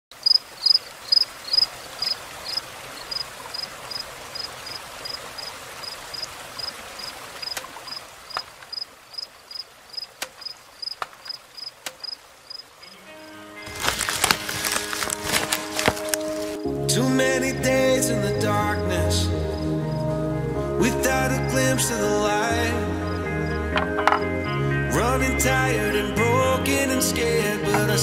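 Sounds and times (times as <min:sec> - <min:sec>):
cricket chirping: 0:00.2 - 0:13.4.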